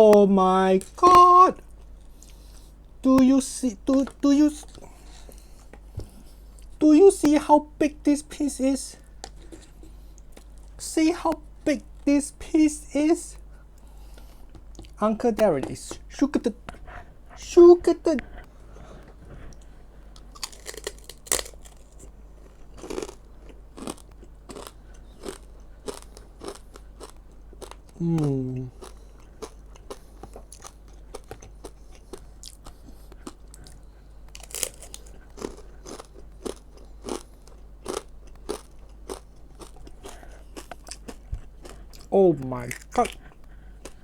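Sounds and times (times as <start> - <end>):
crunching crispy snack: 20.2 - 43.2.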